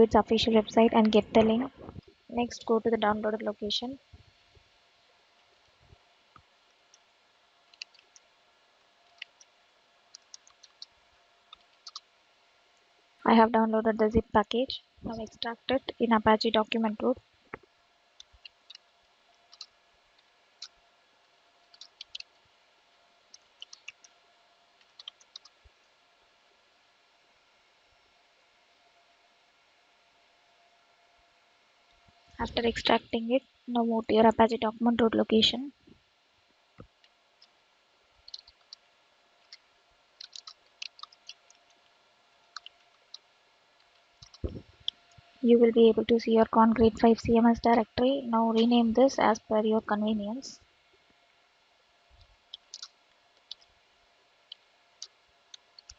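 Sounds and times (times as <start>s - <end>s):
computer key clicks: 21.8s - 22.3s, 40.2s - 41.5s, 52.6s - 53.6s
keyboard keystrokes: 40.2s - 41.4s.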